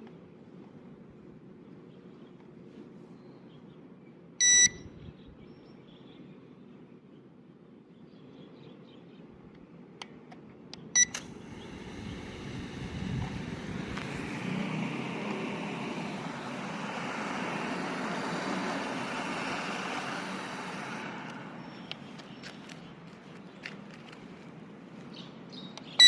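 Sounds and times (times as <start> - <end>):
short beep: 4.4 - 4.9, 11.0 - 11.2
drone propellers whirring: 11.0 - 22.0.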